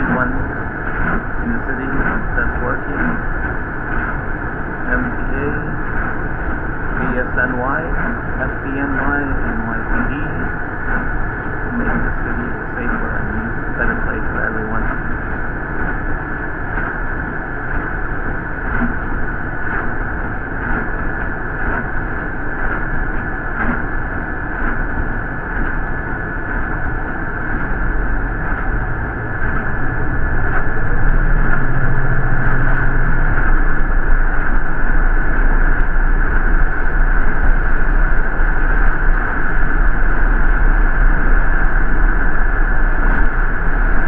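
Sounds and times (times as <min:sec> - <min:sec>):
bus rumble: 0:00.0 - 0:04.2, 0:11.7 - 0:15.9, 0:26.5 - 0:44.0
high whine: 0:00.0 - 0:44.0.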